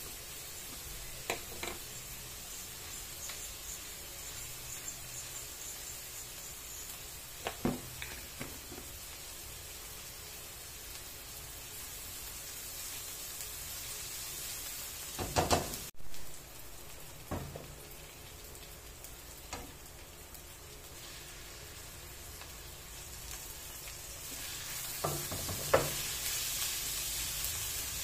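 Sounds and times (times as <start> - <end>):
onion sizzling in hot oil: 0.0 - 28.0
spatula scraping and knocking pan: 24.9 - 26.1.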